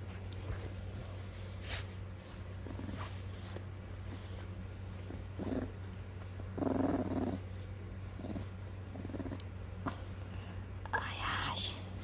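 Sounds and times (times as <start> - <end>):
puppy growling: 2.6 - 4.3, 5.0 - 10.1.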